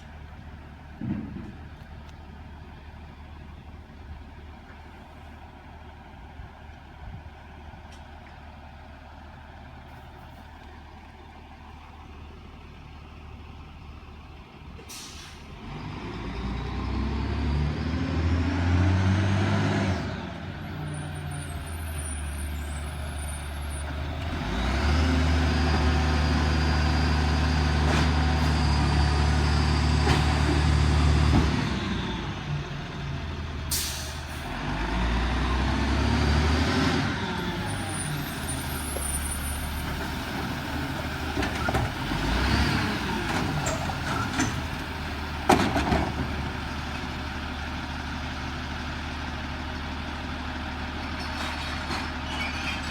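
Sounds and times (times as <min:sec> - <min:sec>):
air brake hiss: 0:14.8 - 0:15.6, 0:33.7 - 0:34.5
garbage truck diesel engine revving: 0:15.0 - 0:52.4.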